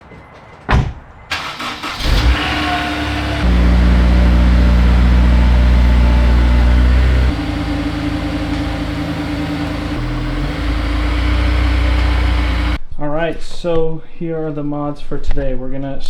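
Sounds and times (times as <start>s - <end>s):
car engine idling: 1.3s - 12.8s.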